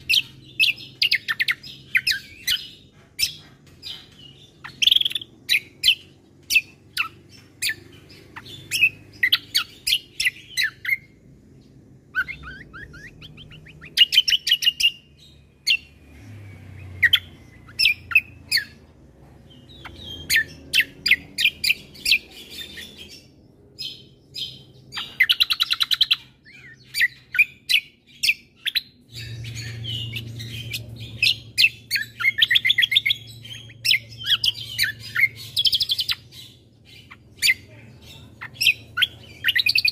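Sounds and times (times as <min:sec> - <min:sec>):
faint low hum: 0:00.0 - 0:39.9
songbird chirping and trilling: 0:00.0 - 0:39.9.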